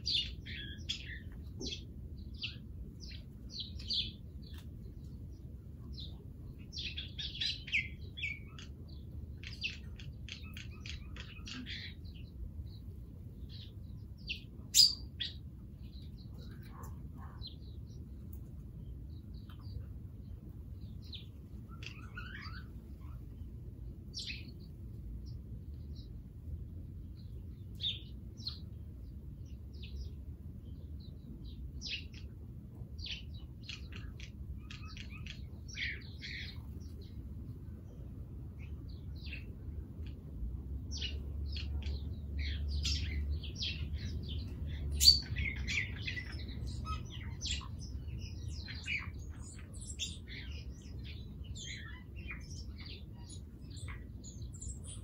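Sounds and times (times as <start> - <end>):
small birds chirping: 0.0 - 55.0
steady low rumble: 0.0 - 55.0.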